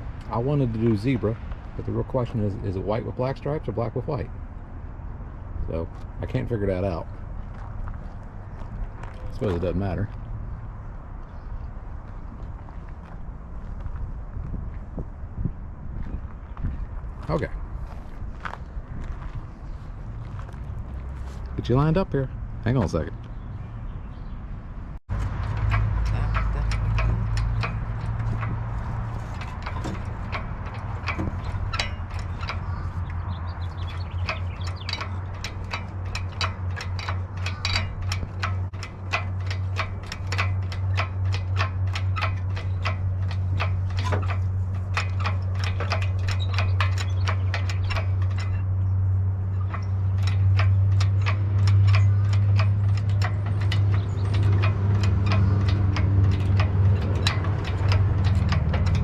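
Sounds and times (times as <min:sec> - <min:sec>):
steady low hum: 0:24.8 - 0:59.0
rapid mechanical clicking: 0:25.1 - 0:59.0.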